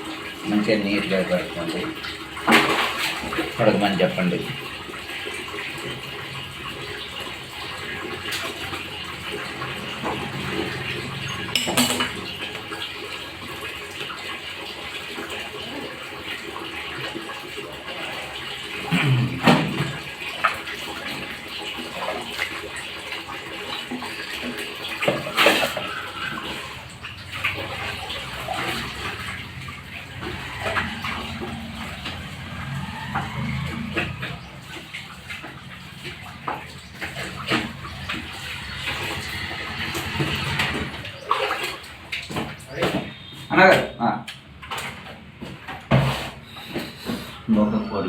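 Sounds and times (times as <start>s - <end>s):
water running and splashing: 0.0s - 43.6s.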